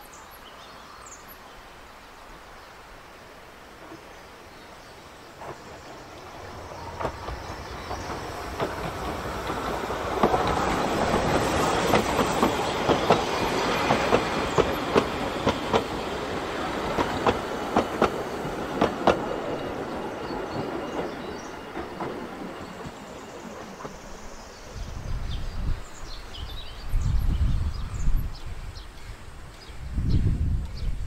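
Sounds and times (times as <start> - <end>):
train wheels clicking over rail joints: 5.4 - 24.0.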